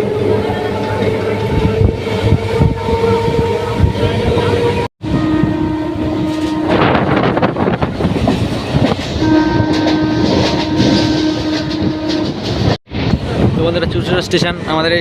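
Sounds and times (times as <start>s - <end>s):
train horn blasts: 0.0s - 7.8s, 9.1s - 12.7s
train wheels clattering on rails: 6.3s - 14.5s.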